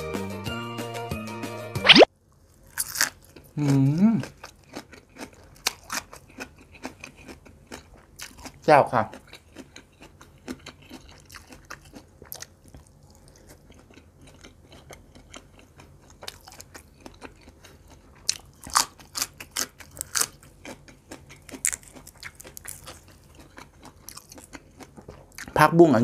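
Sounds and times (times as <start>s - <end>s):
wet mouth clicks: 1.9s - 2.1s
chewing meat: 2.7s - 26.0s.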